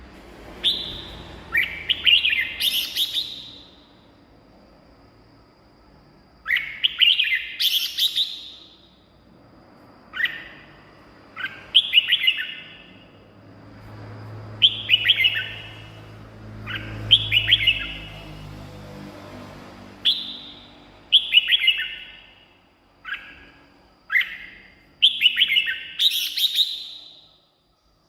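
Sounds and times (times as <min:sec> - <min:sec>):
bird singing whistled notes: 0:00.6 - 0:04.0, 0:06.4 - 0:09.1, 0:10.1 - 0:13.2, 0:14.6 - 0:18.3, 0:20.0 - 0:27.5.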